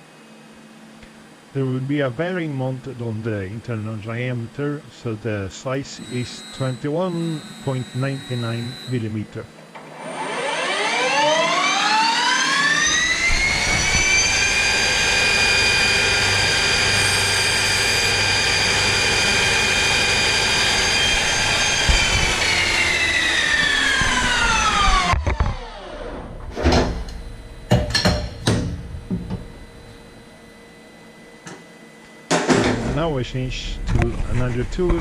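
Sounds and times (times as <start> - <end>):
lathe spindle whining: 5.2 - 31.6
sharp knocks and clicks: 27.7 - 29.4.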